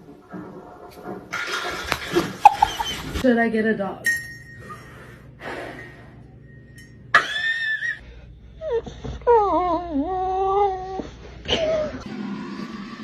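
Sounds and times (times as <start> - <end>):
animal whining: 2.4 - 3.2.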